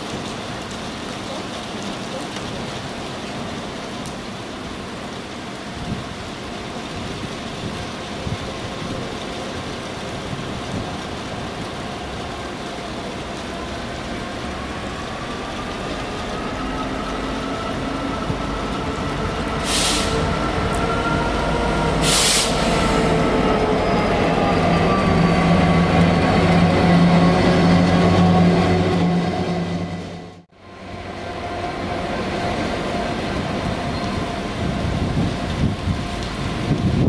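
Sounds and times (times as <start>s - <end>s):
train passing: 3.0s - 37.0s
short bursts of high hiss: 22.0s - 22.8s.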